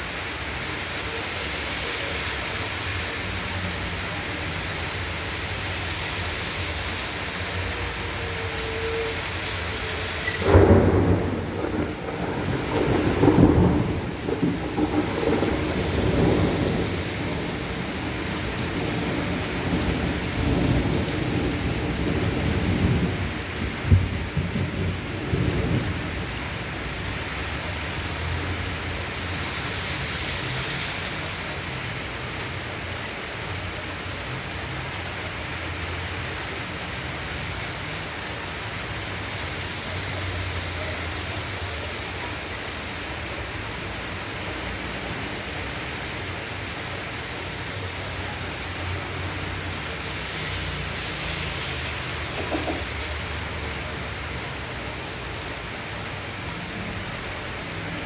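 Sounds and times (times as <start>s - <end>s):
heavy rain pouring: 0.0s - 58.0s
thunderclap: 10.2s - 26.2s, 52.3s - 53.0s
low thunder rumbling: 10.2s - 27.1s.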